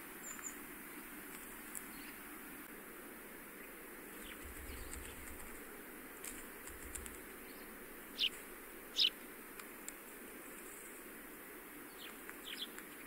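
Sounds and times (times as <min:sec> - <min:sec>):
faint hiss: 0:00.0 - 0:13.0
high bird calls: 0:04.1 - 0:05.6, 0:06.9 - 0:09.3.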